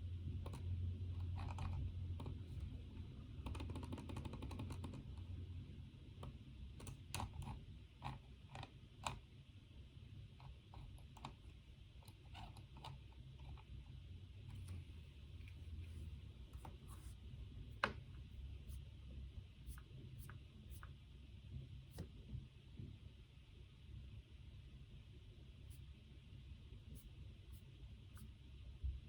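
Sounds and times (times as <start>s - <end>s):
low steady hum: 0.0s - 29.0s
typing on keyboard: 3.4s - 5.1s.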